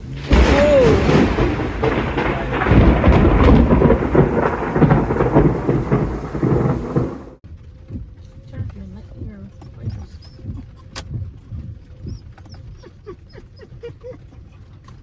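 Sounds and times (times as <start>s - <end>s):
rolling thunder: 0.0s - 7.4s
heavy rain: 0.0s - 7.6s.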